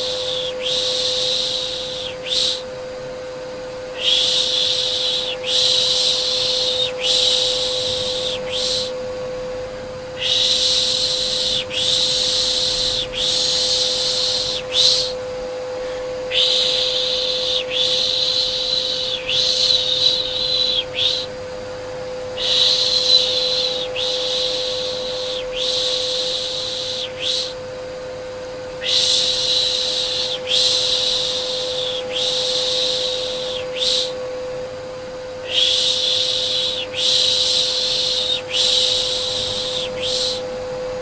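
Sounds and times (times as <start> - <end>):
vacuum cleaner hum: 0.0 - 41.0
person shushing: 4.0 - 9.0, 10.2 - 15.2, 15.8 - 21.4, 22.4 - 27.6, 35.4 - 40.5.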